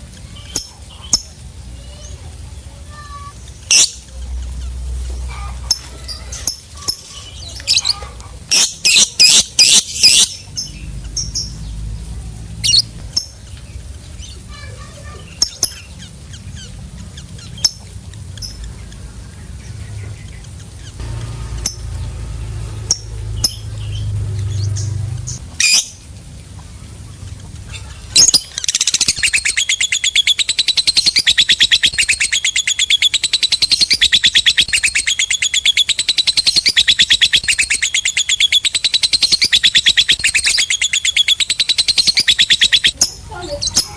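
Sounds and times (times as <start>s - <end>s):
lovebird chirping and trilling: 0.2s - 26.1s, 26.8s - 43.9s.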